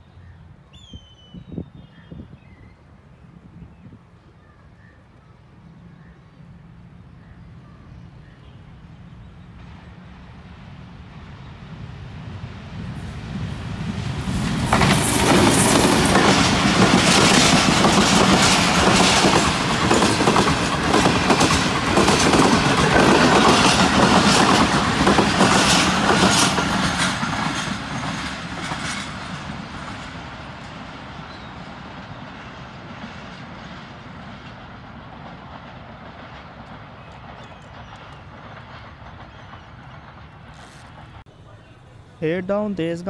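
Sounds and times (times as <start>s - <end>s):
train passing at speed: 2.6s - 43.0s
wheels clacking over rail joints: 14.2s - 30.8s, 33.0s - 41.2s.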